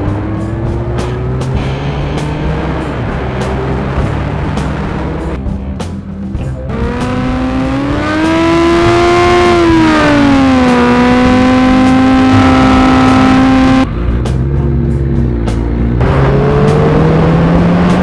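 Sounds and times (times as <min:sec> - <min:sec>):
motorcycle engine at high revs: 0:06.7 - 0:13.9.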